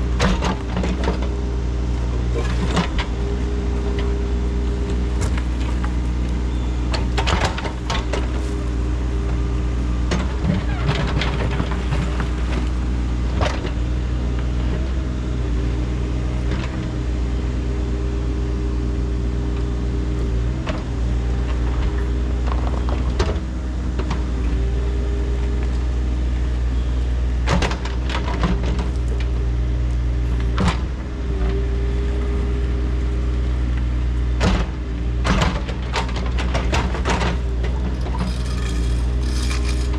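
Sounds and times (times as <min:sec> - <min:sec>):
engine running steadily: 0:00.0 - 0:39.9
sharp knocks and scrapes: 0:35.3 - 0:39.9.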